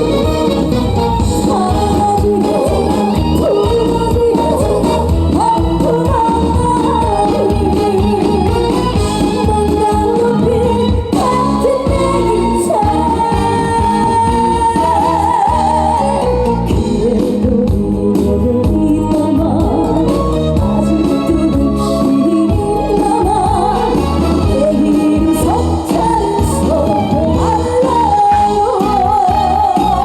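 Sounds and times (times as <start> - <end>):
band accompaniment: 0.0 - 30.0
woman singing with vibrato: 0.0 - 30.0.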